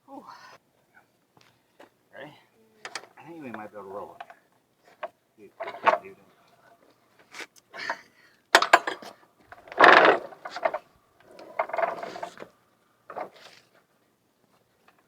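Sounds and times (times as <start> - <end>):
metal mower deck clanking: 5.6 - 6.1, 8.6 - 12.5.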